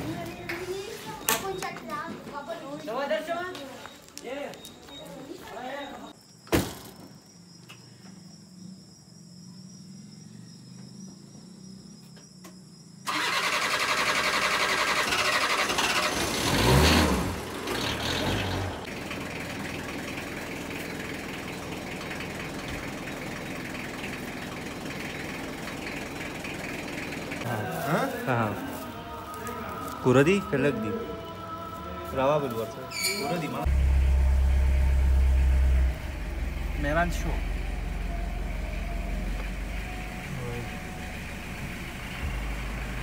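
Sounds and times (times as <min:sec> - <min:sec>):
vehicle engine running: 0:13.0 - 0:32.9, 0:33.5 - 0:43.0.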